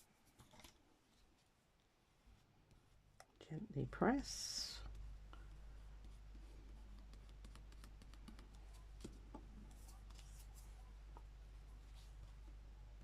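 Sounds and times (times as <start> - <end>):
paper rustling: 9.7 - 10.8.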